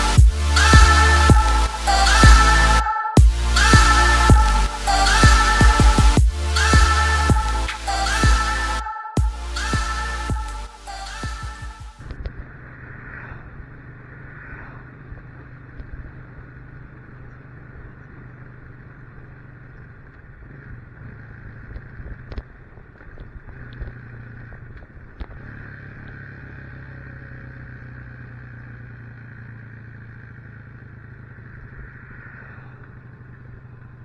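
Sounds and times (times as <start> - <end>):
motorcycle engine running: 0.0 - 2.6, 3.2 - 8.5, 11.2 - 34.0
wind and road noise: 12.0 - 34.0.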